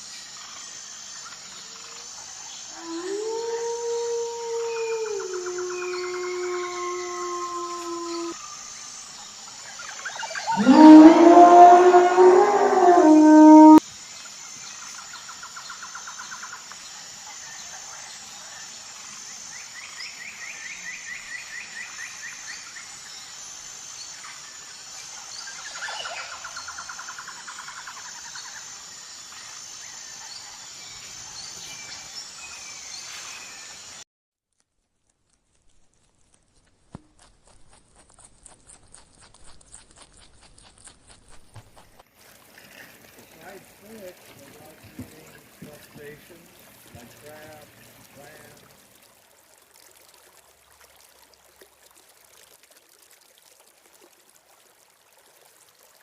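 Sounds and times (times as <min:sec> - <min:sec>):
outdoor ambience: 0:00.0 - 0:55.9
loud low animal call: 0:02.7 - 0:08.4, 0:10.5 - 0:13.8.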